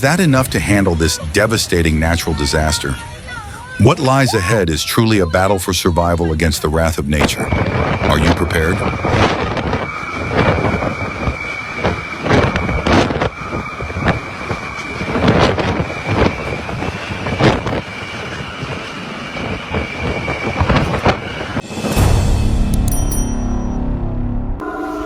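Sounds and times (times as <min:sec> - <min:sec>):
wind and rain: 0:00.0 - 0:22.3
steady high whistle: 0:07.4 - 0:18.6, 0:24.6 - 0:25.0.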